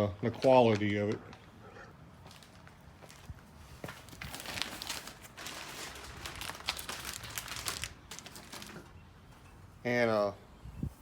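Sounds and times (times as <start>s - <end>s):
packing material crinkling and tearing: 0.2s - 1.5s, 3.9s - 9.0s.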